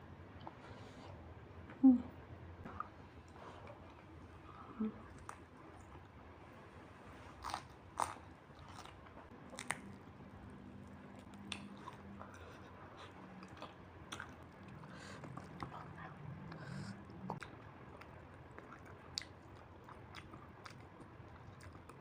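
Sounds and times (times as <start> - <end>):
low steady hum: 0.0 - 22.0
chewing with crunches: 7.3 - 22.0.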